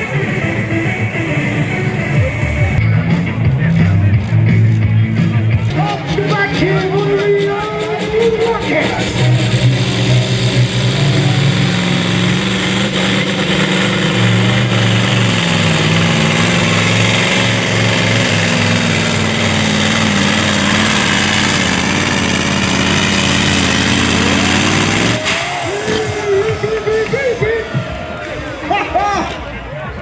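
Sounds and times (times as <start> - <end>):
truck engine running hard: 0.0 - 30.0.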